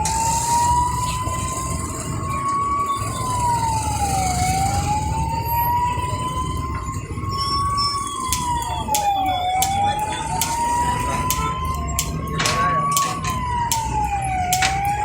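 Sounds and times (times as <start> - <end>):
fire engine siren wailing: 0.0 - 15.0.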